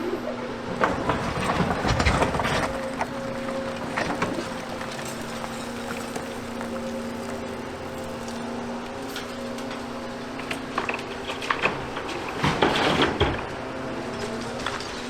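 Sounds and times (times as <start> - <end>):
excavator diesel engine running: 0.6 - 12.4
rubble clattering and crashing: 0.6 - 13.4.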